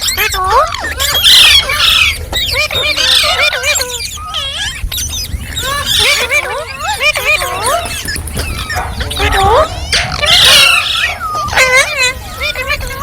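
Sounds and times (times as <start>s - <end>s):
parrot screeching: 3.0s - 11.3s
parrot chattering: 3.2s - 11.1s.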